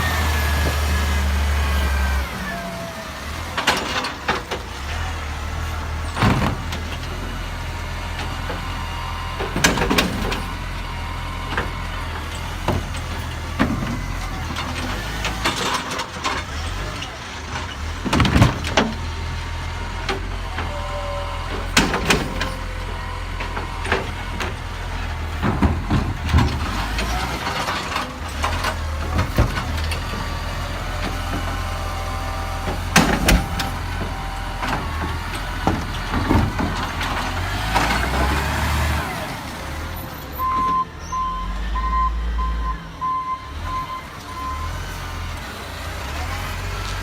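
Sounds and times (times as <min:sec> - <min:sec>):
garbage truck engine running: 0:00.0 - 0:47.0
sharp knocks and clanks: 0:23.4 - 0:29.9
reversing alarm beeping: 0:40.4 - 0:44.8.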